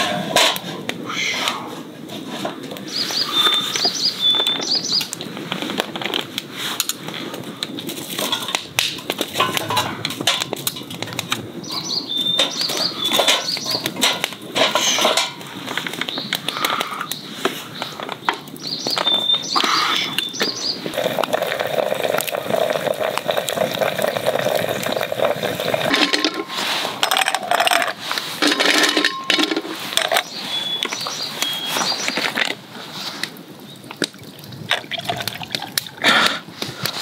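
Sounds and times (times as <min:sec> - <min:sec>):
wood fire crackling: 0:00.0 - 0:37.0
bird chirping and whistling: 0:02.9 - 0:05.1, 0:11.6 - 0:13.8, 0:18.6 - 0:20.9, 0:30.2 - 0:32.2.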